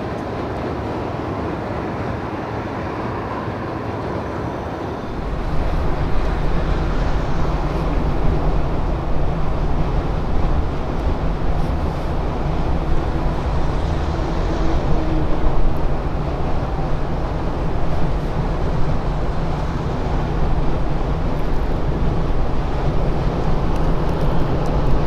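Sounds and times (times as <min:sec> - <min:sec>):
road and wind noise in car: 0:00.0 - 0:25.0
low rumble: 0:05.0 - 0:25.0.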